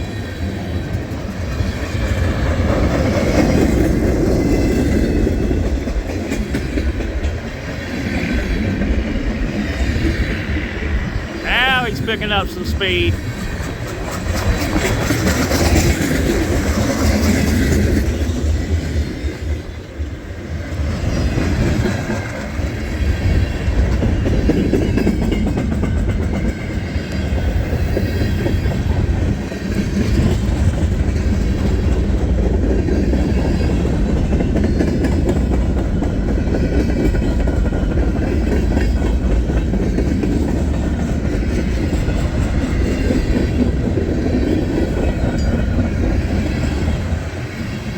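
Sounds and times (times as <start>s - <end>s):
freight train rumbling on rails: 14.0s - 47.9s.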